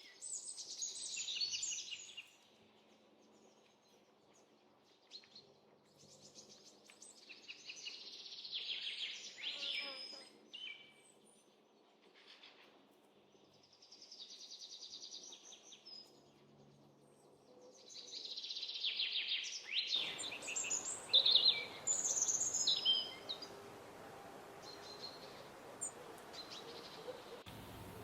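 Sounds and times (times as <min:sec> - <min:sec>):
songbirds chirping and singing: 0:13.4 - 0:28.0
steady hiss: 0:20.0 - 0:26.5.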